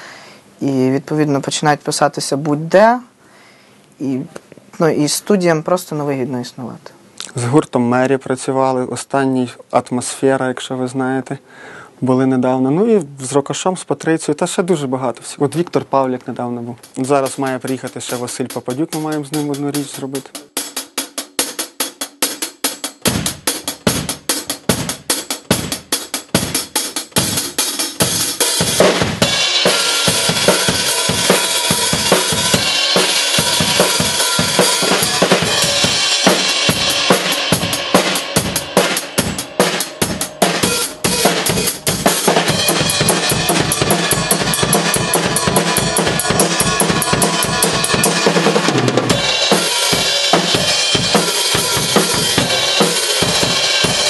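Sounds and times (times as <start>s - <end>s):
drum kit punk beat: 16.8s - 54.0s
cymbals crashing: 28.5s - 54.0s.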